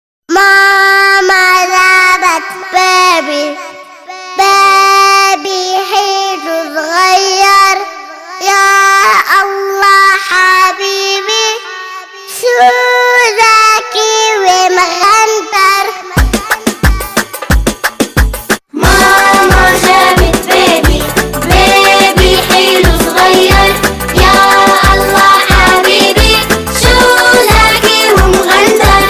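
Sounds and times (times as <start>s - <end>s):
child singing: 0.3s - 17.4s, 18.7s - 29.0s
rhythmic beat with deep drums: 16.2s - 29.0s.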